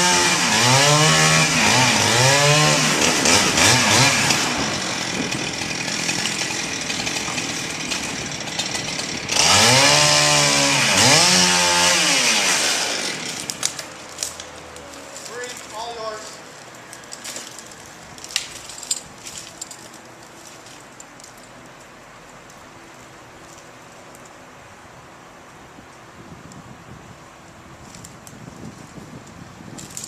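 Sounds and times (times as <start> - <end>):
chainsaw cutting wood: 0.0 - 14.6.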